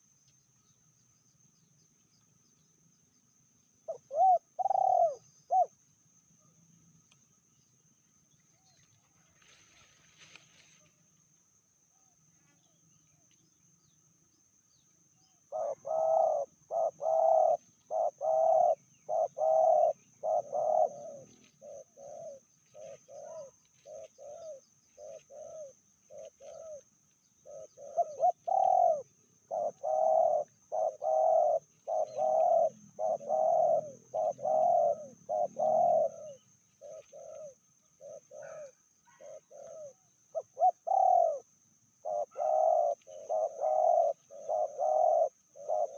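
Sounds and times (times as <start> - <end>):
doves cooing: 3.8 - 5.8, 15.5 - 45.9.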